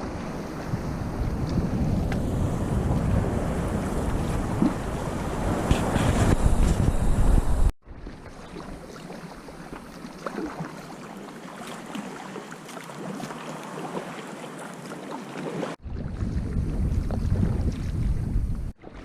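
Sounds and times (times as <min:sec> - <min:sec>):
water splashing around kayak: 0:00.0 - 0:07.0, 0:07.8 - 0:19.0
paddle drips and splashes: 0:07.8 - 0:18.1, 0:18.8 - 0:19.0.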